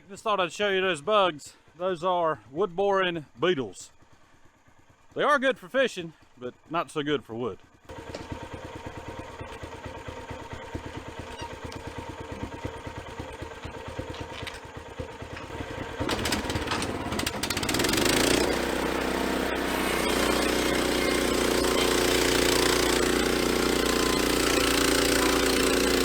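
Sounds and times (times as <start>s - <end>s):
small gasoline engine revving: 7.9s - 26.0s.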